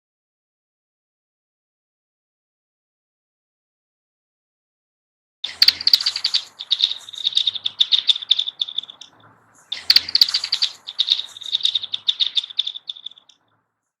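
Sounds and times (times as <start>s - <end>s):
ringing metallic ice chirps: 5.5s - 13.4s.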